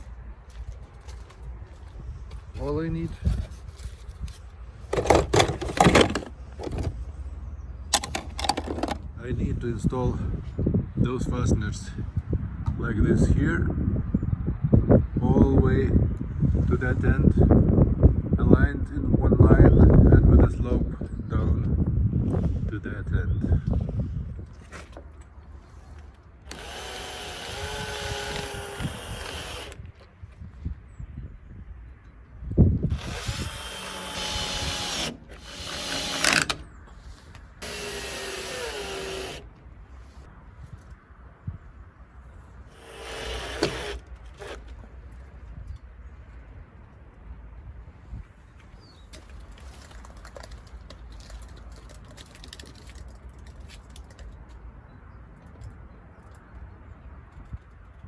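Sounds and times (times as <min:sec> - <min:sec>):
power drill whining: 0:04.9 - 0:07.0, 0:26.5 - 0:29.8, 0:32.9 - 0:36.7, 0:37.6 - 0:39.6, 0:42.7 - 0:44.7.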